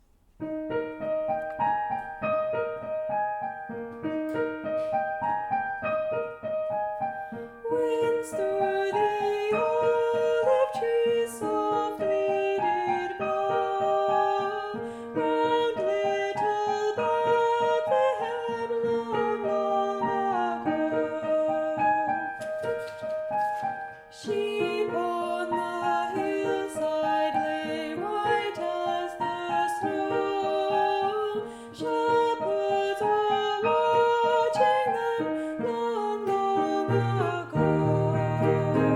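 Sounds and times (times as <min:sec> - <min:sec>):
piano playing carol: 0:00.0 - 0:38.9
person singing: 0:07.3 - 0:22.9, 0:24.1 - 0:38.9.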